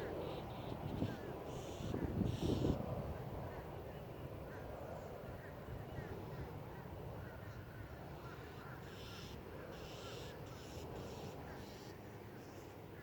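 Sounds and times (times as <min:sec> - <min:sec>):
faint bird chirps: 0:07.3 - 0:12.7.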